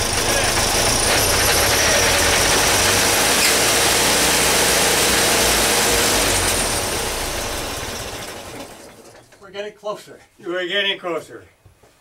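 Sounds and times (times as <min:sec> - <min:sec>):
engine cranking by electric starter: 0:00.0 - 0:09.4.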